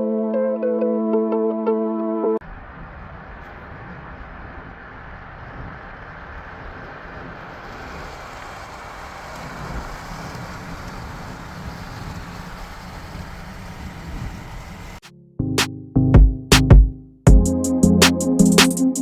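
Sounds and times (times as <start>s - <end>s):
vehicle road noise: 2.4s - 15.1s.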